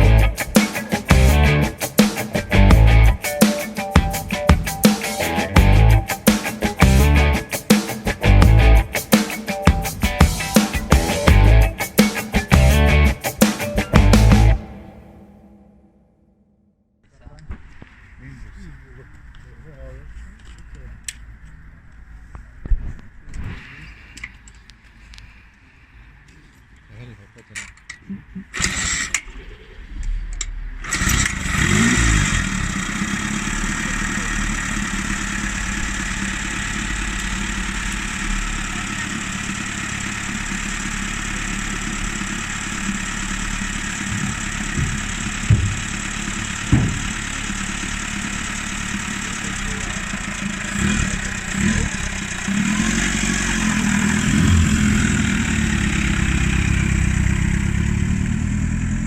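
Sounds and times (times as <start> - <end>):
motorcycle engine idling and revving: 0.0 - 3.2, 3.9 - 14.9, 28.6 - 59.0.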